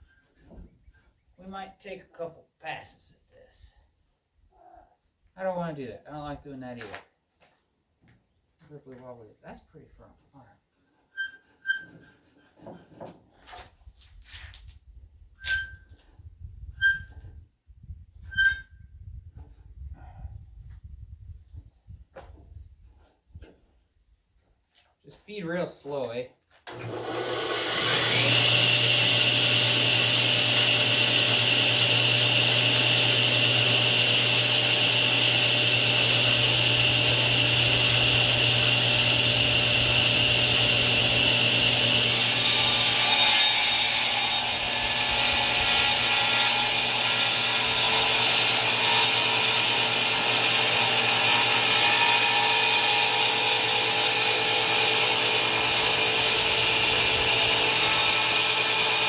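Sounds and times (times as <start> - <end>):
saw cutting wood: 26.7 - 59.0
table saw whine: 26.7 - 59.0.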